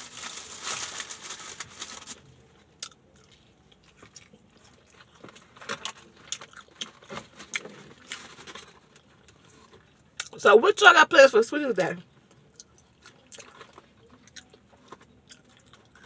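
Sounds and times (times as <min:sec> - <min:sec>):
paper wrapping rustling: 0:00.0 - 0:02.4
crunching of fried food: 0:00.0 - 0:10.4, 0:12.2 - 0:16.0.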